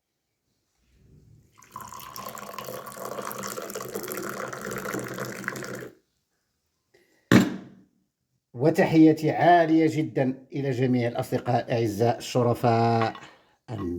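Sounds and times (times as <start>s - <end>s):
tea pouring into a glass: 1.5s - 6.0s.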